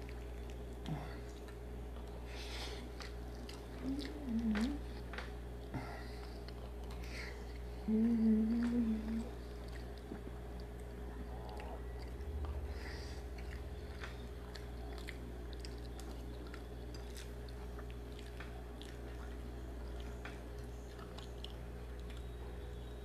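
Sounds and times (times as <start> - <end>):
steady low hum: 0.0 - 23.0
wet mouth clicks chewing: 2.8 - 5.4, 8.6 - 12.7, 13.3 - 22.5.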